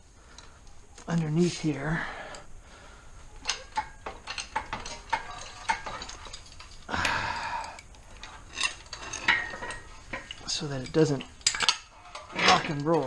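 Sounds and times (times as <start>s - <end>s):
metal scraping: 8.1s - 13.0s.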